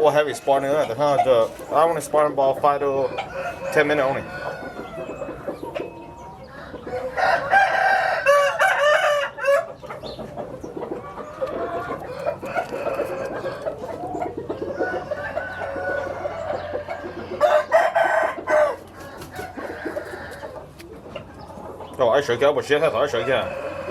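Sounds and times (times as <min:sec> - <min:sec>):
chickens clucking: 0:00.0 - 0:23.9
roosters crowing: 0:00.0 - 0:23.9.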